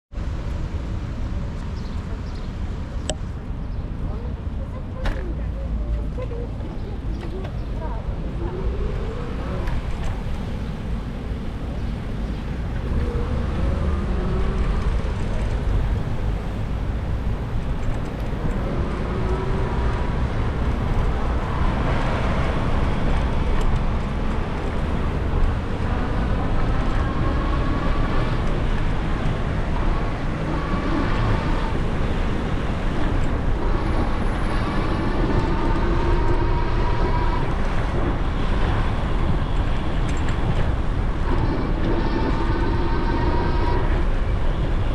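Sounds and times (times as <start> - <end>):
wind rushing over microphone: 0.2 - 44.9
low rumble: 5.3 - 44.9
faint rising whines: 6.9 - 28.6.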